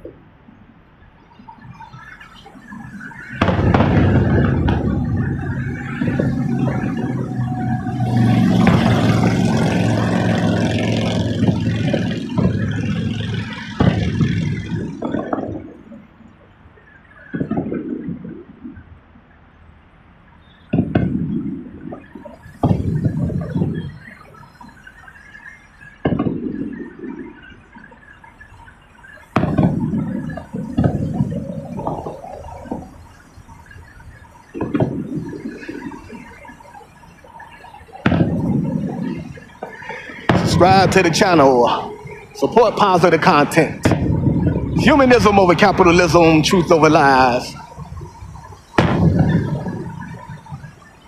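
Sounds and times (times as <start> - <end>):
fireworks bangs: 1.5 - 16.1, 17.0 - 18.5, 20.6 - 51.0
vehicle engine running: 3.5 - 15.4.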